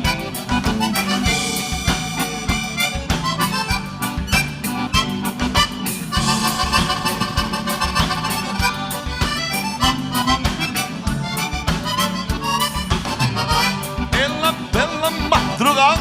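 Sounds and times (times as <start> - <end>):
accordion playing: 0.0 - 16.0
bass: 0.0 - 16.0
fast drum beat: 5.5 - 10.7.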